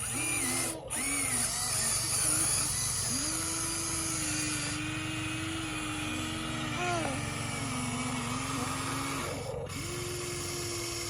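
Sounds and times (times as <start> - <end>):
electric motors whining: 0.0 - 11.0.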